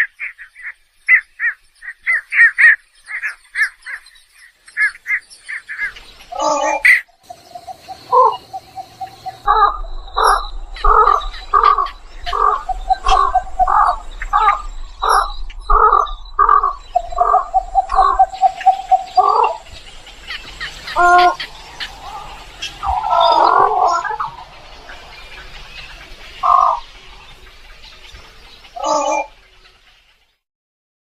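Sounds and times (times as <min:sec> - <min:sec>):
birds calling: 0:00.0 - 0:30.4
steady pulsing tone: 0:07.3 - 0:28.4.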